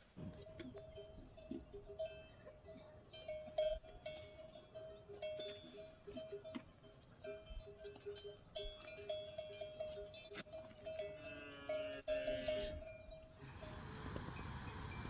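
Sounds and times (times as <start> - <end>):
ringing livestock bells: 0.3 - 15.0.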